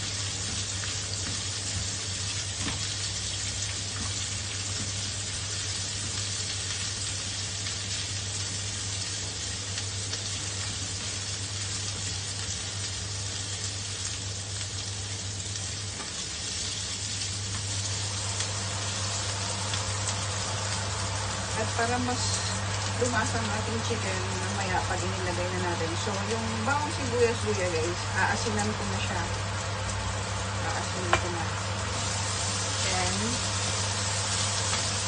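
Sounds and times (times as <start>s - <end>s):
vegetables sizzling in a wok: 0.0s - 35.0s
steady low hum: 16.5s - 35.0s.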